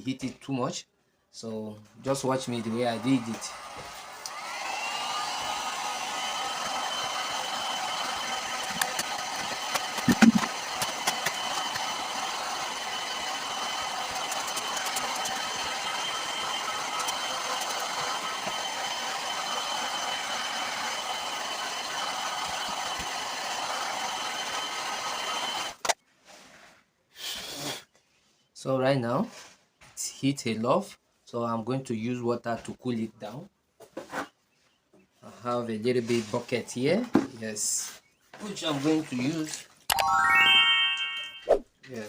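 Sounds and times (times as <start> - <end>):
heat gun fan whining: 2.5 - 25.9.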